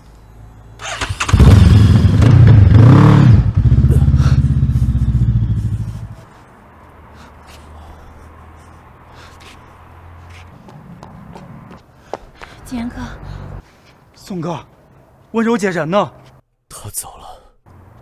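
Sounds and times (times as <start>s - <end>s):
car engine revving: 0.8s - 6.2s.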